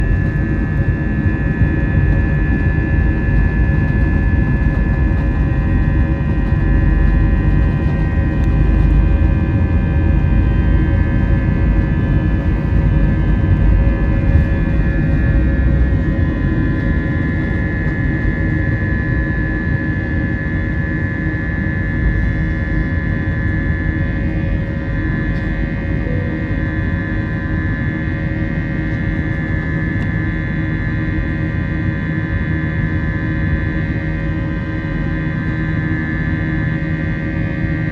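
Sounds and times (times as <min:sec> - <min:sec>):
jet engines running: 0:00.0 - 0:37.9.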